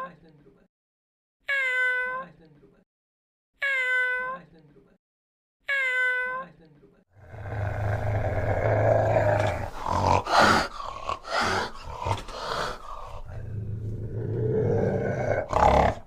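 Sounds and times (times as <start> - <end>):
cat growling low: 7.2 - 16.0
cat hissing: 7.4 - 16.0.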